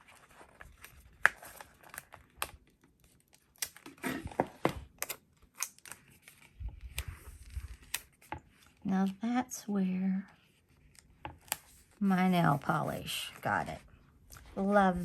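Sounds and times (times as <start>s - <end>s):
paper crinkling: 0.0s - 4.0s, 5.0s - 8.8s.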